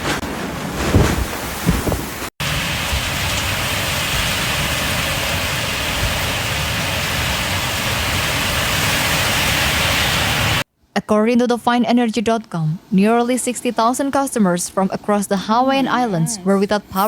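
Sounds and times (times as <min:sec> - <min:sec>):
heavy rain pouring: 0:00.2 - 0:10.6.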